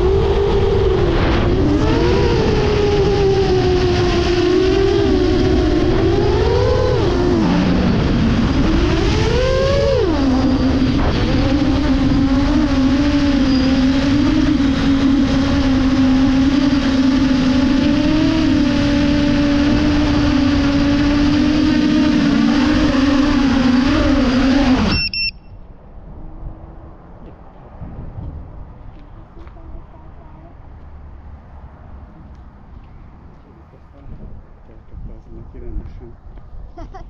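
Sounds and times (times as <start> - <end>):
drone motors whining: 0.0 - 25.7
high beep: 24.9 - 25.6.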